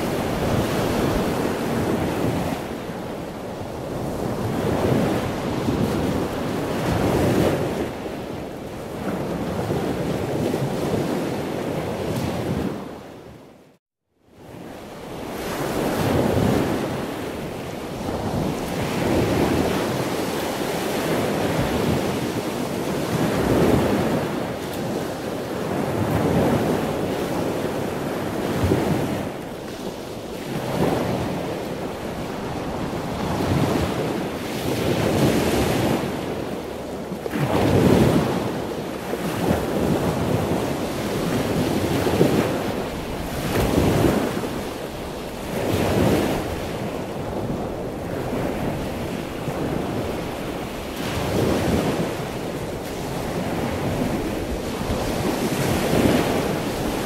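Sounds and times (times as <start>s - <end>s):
ocean waves washing in: 14.8s - 57.0s.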